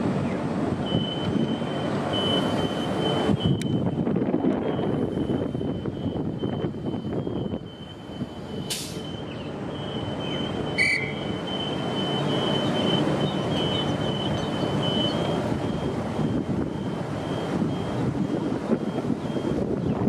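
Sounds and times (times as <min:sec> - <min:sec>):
train rumble: 0:00.0 - 0:20.0
short hiss: 0:08.7 - 0:09.0.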